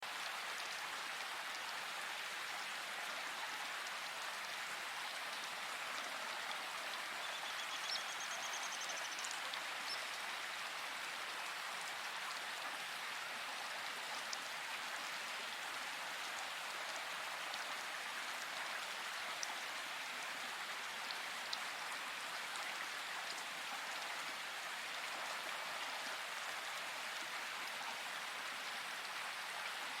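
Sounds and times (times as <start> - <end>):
steady rain: 0.0 - 30.0.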